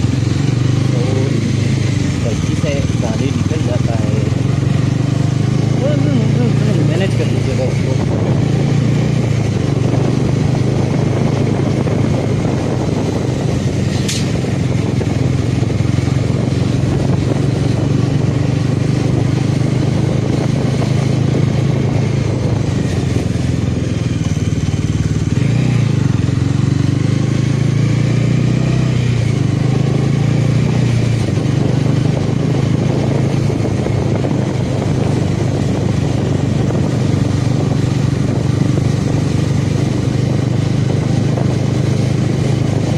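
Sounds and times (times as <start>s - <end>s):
motorcycle engine cruising: 0.0s - 42.9s
road and wind noise: 0.0s - 42.9s
sharp click: 14.0s - 14.3s.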